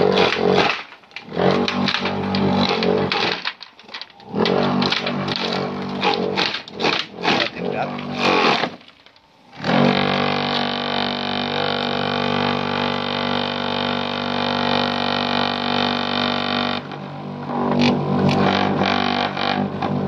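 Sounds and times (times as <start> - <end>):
chopping machine droning hum: 0.0 - 20.0.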